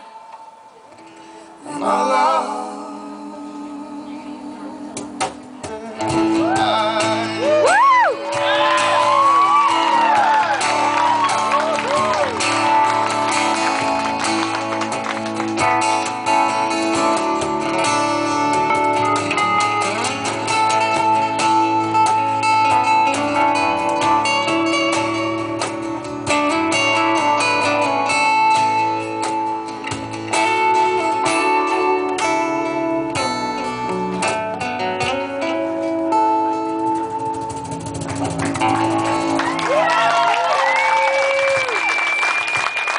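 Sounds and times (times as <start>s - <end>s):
electric guitars: 4.9s - 42.9s
live rock band playing: 5.2s - 40.1s.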